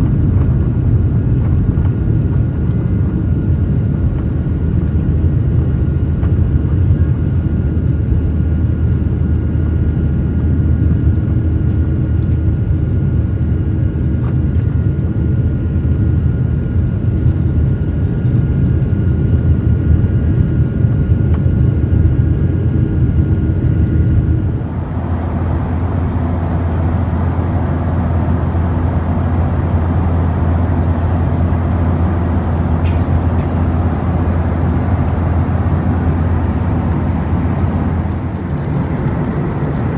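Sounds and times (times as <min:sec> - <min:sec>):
jet cabin rumble: 0:00.0 - 0:13.0, 0:22.4 - 0:39.9
faint steady tones: 0:24.6 - 0:39.9.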